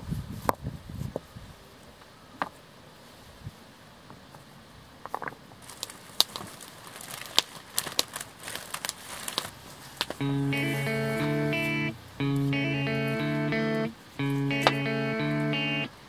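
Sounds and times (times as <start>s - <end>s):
wood fire crackling: 5.6s - 10.2s.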